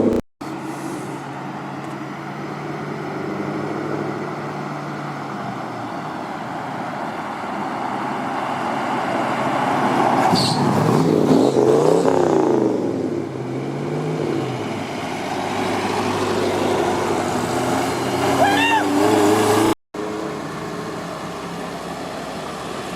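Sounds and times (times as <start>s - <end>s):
car engine revving: 9.1s - 22.9s.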